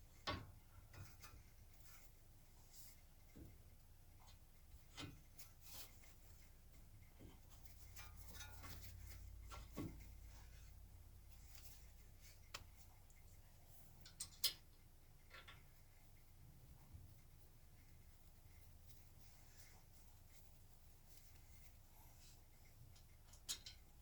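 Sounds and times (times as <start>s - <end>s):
metal tools clicking and knocking: 23.3s - 23.9s.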